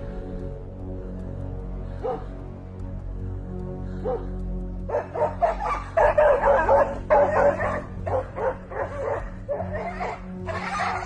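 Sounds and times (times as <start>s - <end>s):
background music: 0.0s - 11.0s
dog barking: 2.0s - 2.3s, 4.0s - 4.3s, 4.9s - 11.0s.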